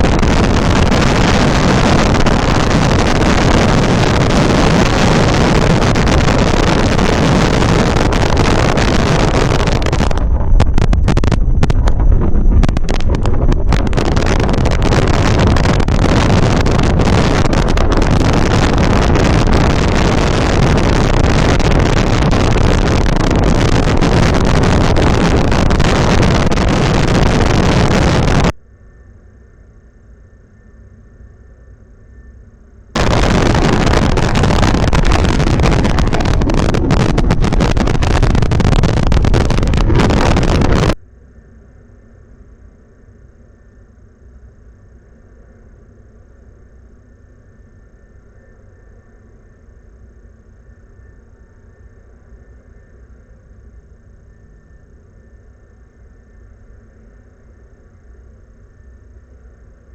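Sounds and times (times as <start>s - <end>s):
wind buffeting microphone: 0.0s - 28.6s, 33.0s - 41.0s
faint steady hum: 0.0s - 59.9s.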